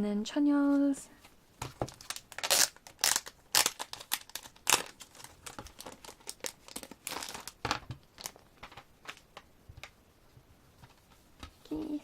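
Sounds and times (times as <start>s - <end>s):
packaging rustling and crinkling: 1.6s - 9.9s.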